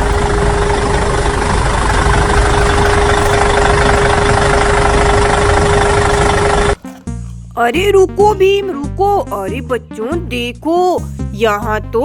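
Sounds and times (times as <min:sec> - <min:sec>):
truck engine running: 0:00.0 - 0:06.8.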